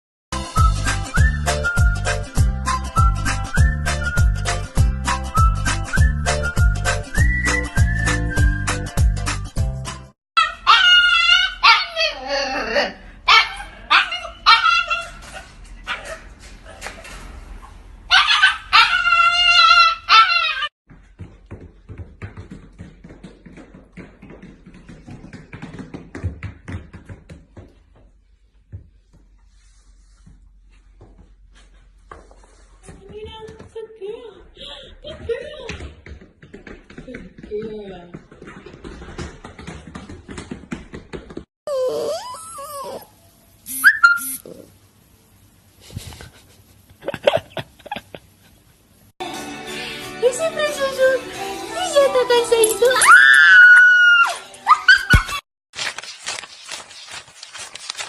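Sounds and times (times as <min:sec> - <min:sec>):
dog yipping: 0:10.4 - 0:12.2, 0:13.3 - 0:16.9, 0:18.1 - 0:20.7, 0:41.7 - 0:44.5, 0:53.0 - 0:55.4
dog whining: 0:41.7 - 0:44.8.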